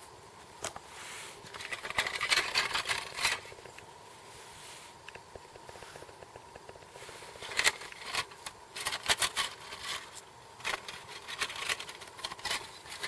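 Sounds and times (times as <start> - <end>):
camp gear scraping and clicking: 1.4 - 3.7, 7.0 - 13.0.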